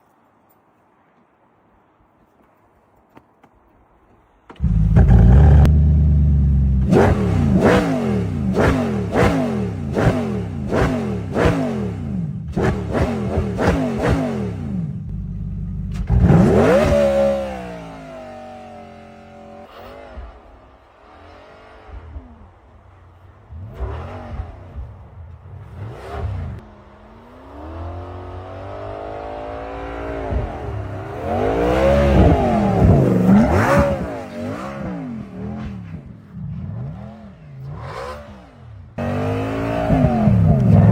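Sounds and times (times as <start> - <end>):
car engine revving hard: 4.6 - 15.0, 16.0 - 20.2, 25.6 - 35.9, 36.7 - 40.9.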